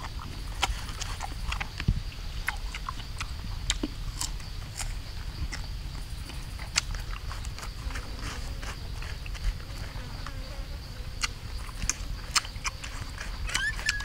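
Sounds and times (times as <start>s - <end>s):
crunching fruit: 0.0s - 10.4s, 11.1s - 14.0s
high insect buzz: 7.6s - 14.0s.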